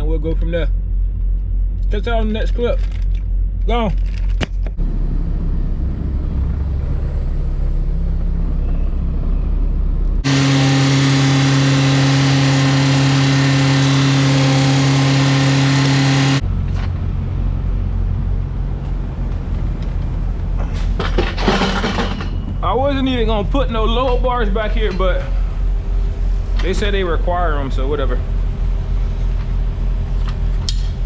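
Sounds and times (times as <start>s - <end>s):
diesel truck engine idling: 4.8s - 20.6s.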